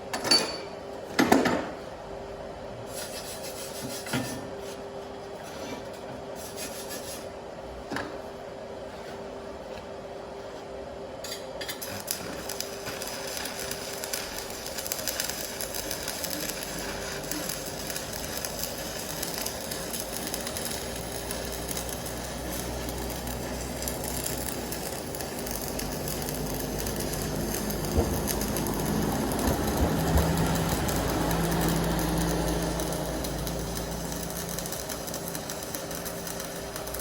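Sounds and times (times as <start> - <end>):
arc welding crackling and sizzling: 6.4 - 7.3, 11.3 - 37.0.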